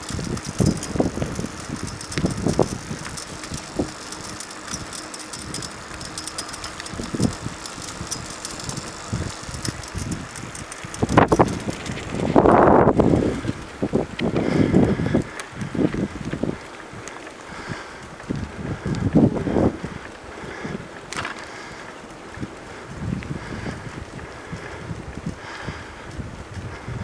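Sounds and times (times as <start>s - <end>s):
rattles: 0.0s - 13.7s
bicycle rolling noise: 0.0s - 27.0s
wind gusts on microphone: 0.0s - 27.0s.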